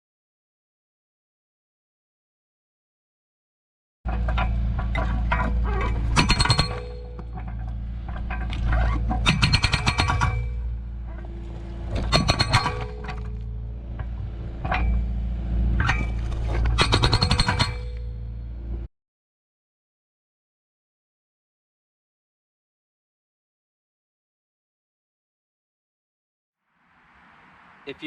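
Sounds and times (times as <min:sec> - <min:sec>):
hydraulic breaker hammering concrete: 0:04.1 - 0:08.4, 0:09.1 - 0:10.6, 0:12.0 - 0:15.0, 0:16.7 - 0:18.2
diesel engine running: 0:10.5 - 0:12.1, 0:12.7 - 0:17.1, 0:17.8 - 0:18.9.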